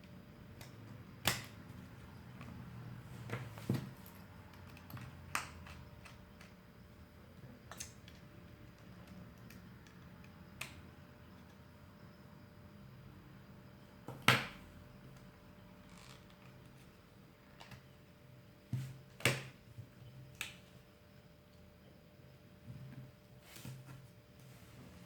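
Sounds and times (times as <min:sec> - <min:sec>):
faint steady hum: 0:00.0 - 0:25.0
tools clicking on plastic phone parts: 0:04.5 - 0:06.6.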